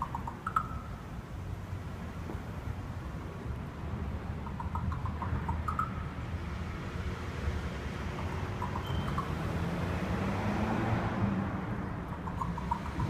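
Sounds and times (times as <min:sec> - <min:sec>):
faint bird chirps: 0:00.0 - 0:01.0, 0:04.4 - 0:06.0, 0:08.6 - 0:09.4.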